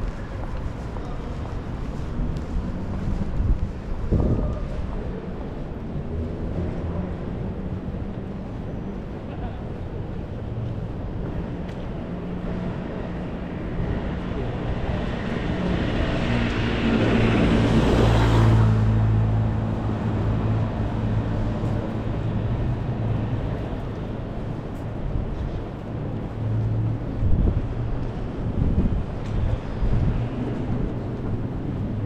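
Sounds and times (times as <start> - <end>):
traffic engine hum: 0.0 - 32.0.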